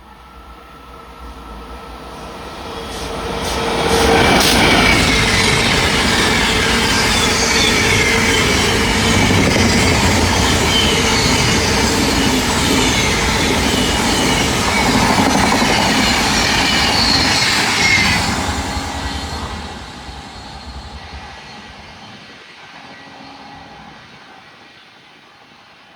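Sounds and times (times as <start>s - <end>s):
train wheels rumbling on rail: 0.0s - 25.9s
wheels squealing: 3.5s - 22.3s.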